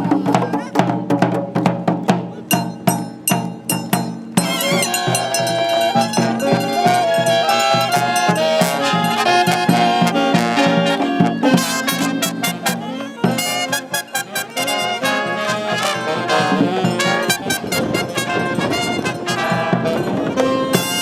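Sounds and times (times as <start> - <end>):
drum and percussion hits: 0.0 - 21.0
brass horns playing melody: 3.6 - 21.0.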